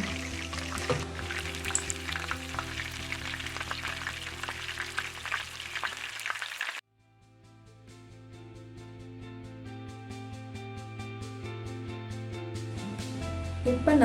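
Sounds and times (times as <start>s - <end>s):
chicken sizzling in hot oil: 0.0s - 6.8s
background music: 0.0s - 14.0s.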